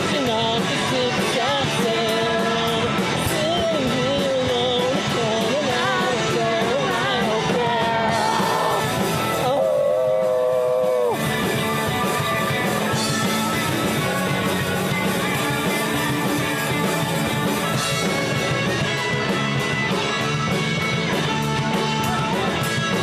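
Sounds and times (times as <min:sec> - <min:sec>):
person singing: 0:00.0 - 0:11.3
drums: 0:00.0 - 0:23.0
guitars: 0:00.0 - 0:23.0.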